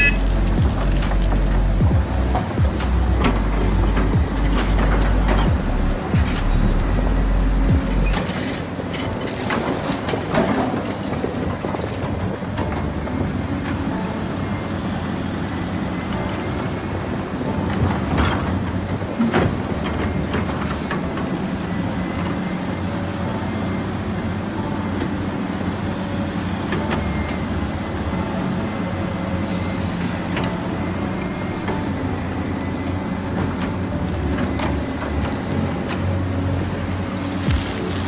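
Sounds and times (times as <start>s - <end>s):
electric motor and gear whine: 0.0s - 38.0s
low mechanical hum: 0.0s - 38.0s.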